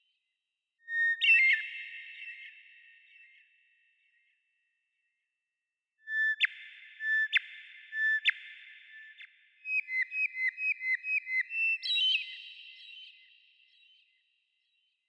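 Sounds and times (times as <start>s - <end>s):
songbird whistling: 9.7s - 13.3s.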